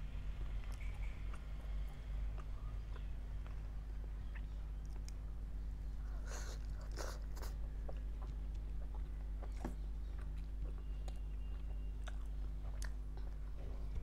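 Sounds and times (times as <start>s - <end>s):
chewing with wet mouth clicks: 0.5s - 5.4s, 6.2s - 14.0s.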